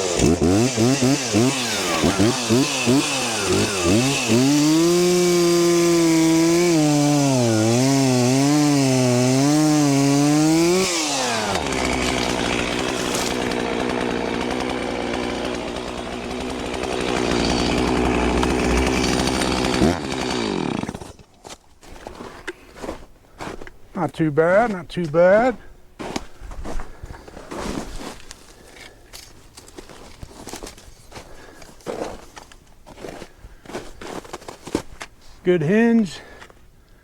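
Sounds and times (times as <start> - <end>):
chainsaw cutting wood: 0.0 - 21.3.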